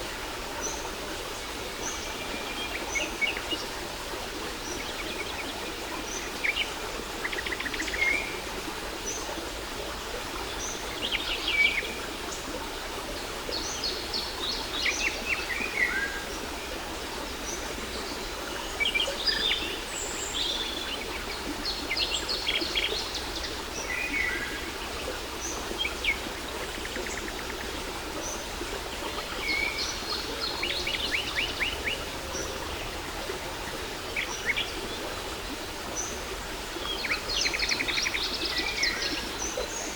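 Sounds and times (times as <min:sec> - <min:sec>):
waterfall: 0:00.0 - 0:39.9.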